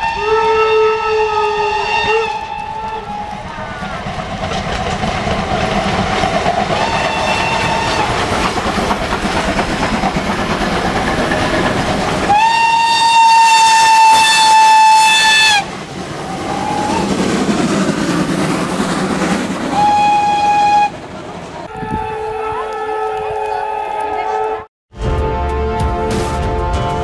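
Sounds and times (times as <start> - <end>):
train whistle blast: 0.0 - 3.3, 6.8 - 8.1, 12.3 - 15.7, 19.7 - 21.0, 21.7 - 25.8
steam locomotive running: 0.0 - 24.4.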